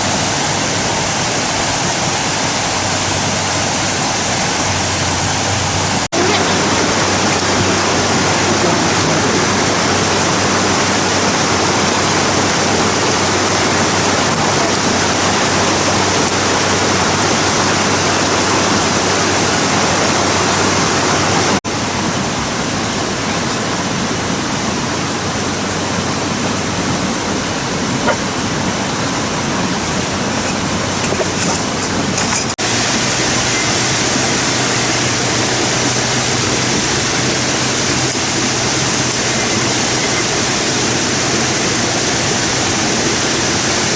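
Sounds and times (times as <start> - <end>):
water rushing: 0.0 - 43.9.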